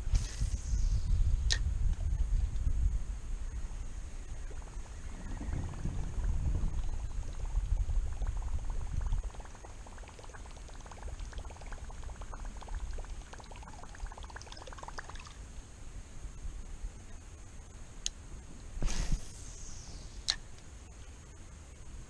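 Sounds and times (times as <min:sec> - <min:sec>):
water trickling and dripping: 0:06.7 - 0:15.4.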